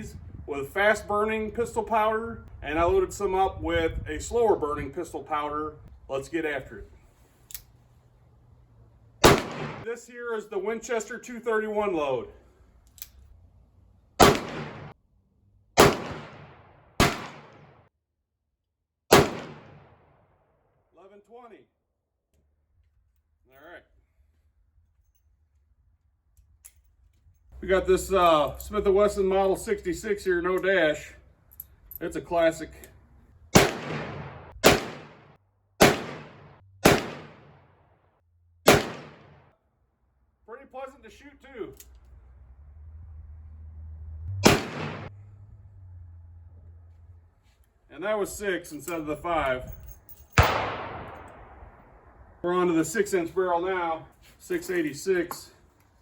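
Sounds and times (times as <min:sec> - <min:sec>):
revolver gunshots: 0:09.2 - 0:09.9, 0:14.2 - 0:15.0, 0:15.8 - 0:17.9, 0:19.1 - 0:20.2, 0:33.5 - 0:37.8, 0:38.6 - 0:39.5, 0:44.3 - 0:45.2, 0:50.3 - 0:52.4
revolver shots with ringing tail: 0:44.4 - 0:45.1.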